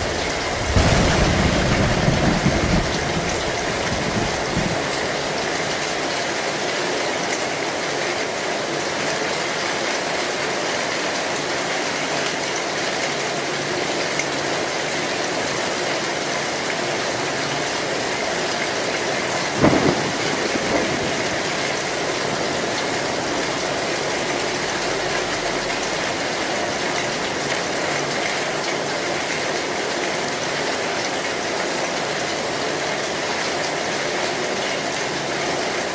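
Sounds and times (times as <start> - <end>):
heavy rain on metal roof: 0.0 - 35.9
sharp crack: 0.1 - 4.5.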